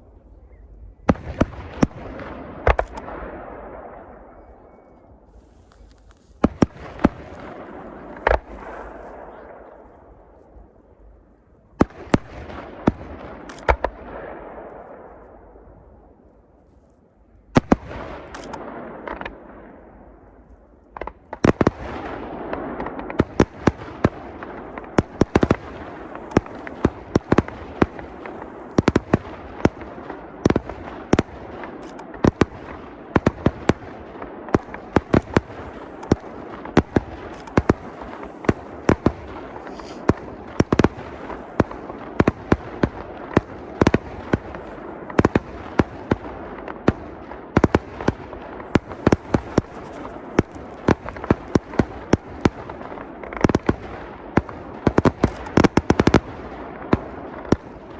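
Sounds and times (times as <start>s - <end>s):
fireworks crackle and rumble: 0.0s - 57.9s
fireworks bangs: 1.0s - 10.6s, 17.5s - 57.9s.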